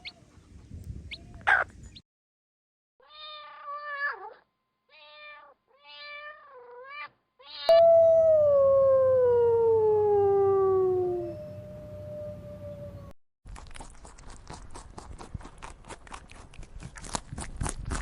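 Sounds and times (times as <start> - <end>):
cat meowing: 3.0 - 8.4
low hum: 7.7 - 13.2.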